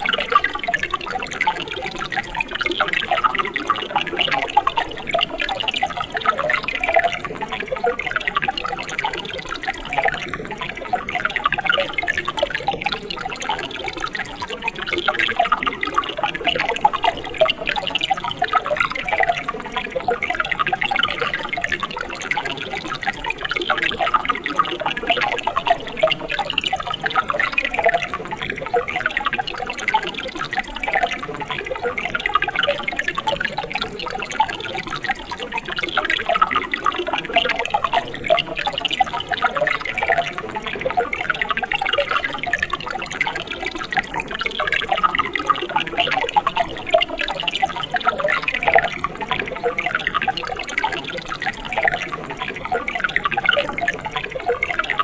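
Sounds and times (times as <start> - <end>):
stream gurgling: 0.0 - 55.0.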